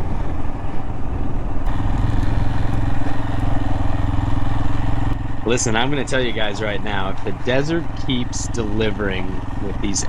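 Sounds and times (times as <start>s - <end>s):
motorcycle engine pulsing: 1.6s - 10.0s.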